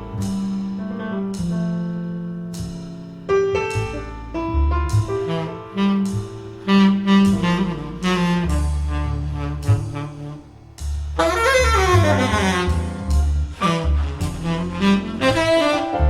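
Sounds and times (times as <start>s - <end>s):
piano chords: 0.0s - 16.0s
walking double bass: 0.0s - 16.0s
tenor saxophone melody: 5.4s - 10.5s, 11.2s - 16.0s.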